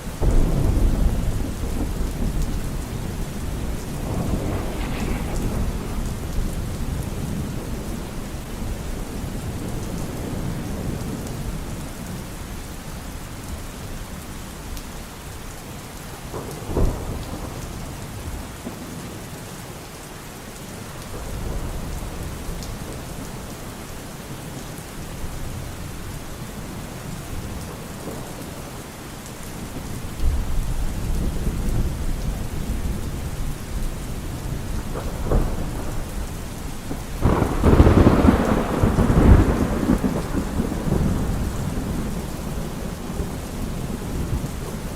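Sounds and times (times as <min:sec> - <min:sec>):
steady rain: 0:00.0 - 0:44.9
thunder crack: 0:00.2 - 0:08.2, 0:36.9 - 0:44.9
rolling thunder rumbling: 0:00.2 - 0:11.8, 0:29.6 - 0:44.9.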